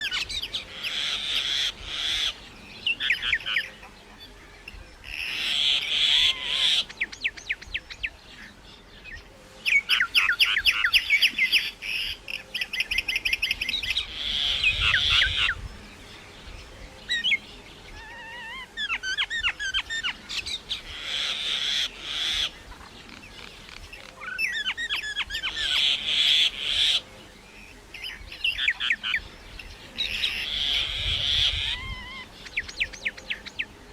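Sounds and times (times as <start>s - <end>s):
birds calling and chirping: 0.0s - 33.9s.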